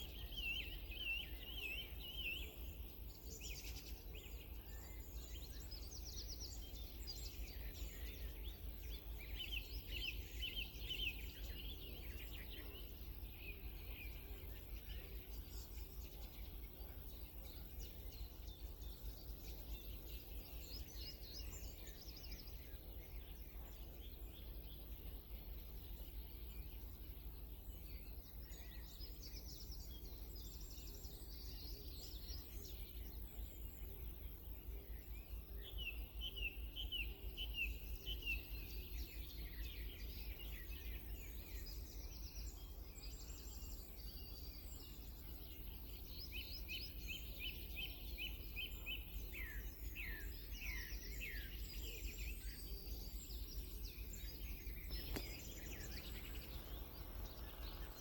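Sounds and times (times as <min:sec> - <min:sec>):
birds chirping and trilling: 0:35.6 - 0:58.0.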